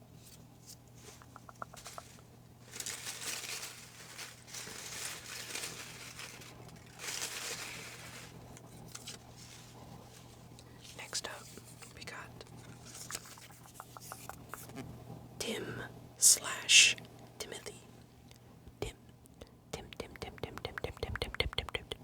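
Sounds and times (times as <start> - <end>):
faint ticks: 1.1 - 2.3, 19.4 - 22.0
paper slips rustling: 1.1 - 8.4, 12.8 - 14.8.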